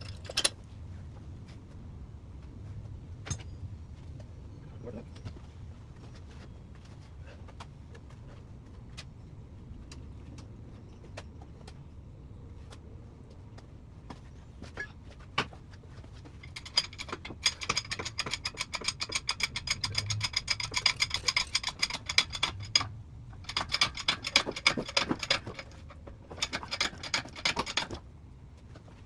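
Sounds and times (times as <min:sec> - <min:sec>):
hand ratchet clicking: 0:16.5 - 0:25.8.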